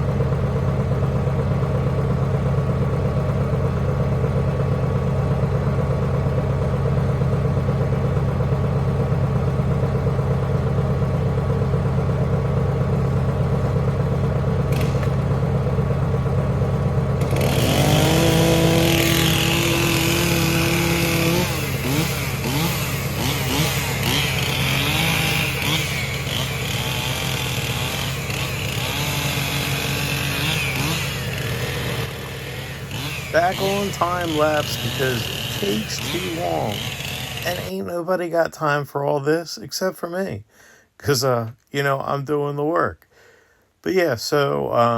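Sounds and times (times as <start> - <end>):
heavy machine engine running: 0.0 - 37.8.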